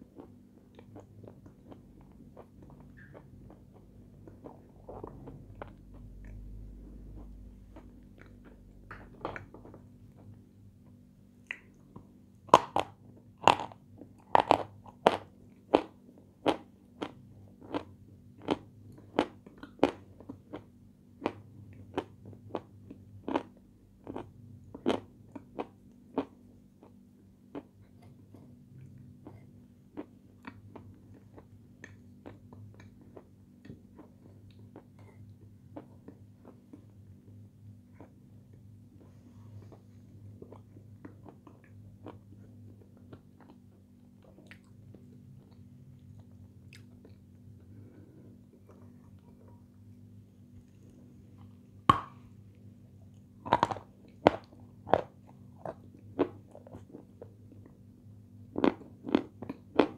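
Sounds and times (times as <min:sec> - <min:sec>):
crunching and chewing sweet: 0:00.0 - 0:59.9
steady low hum: 0:00.0 - 0:59.9.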